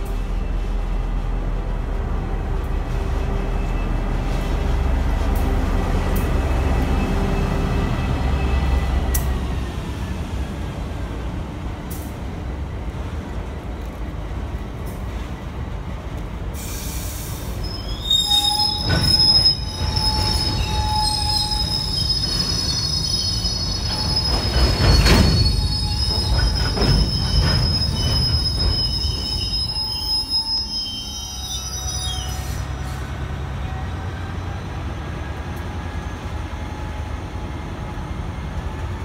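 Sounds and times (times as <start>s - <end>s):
freight train rumbling: 0.0s - 39.0s
wheels squealing: 17.6s - 33.0s.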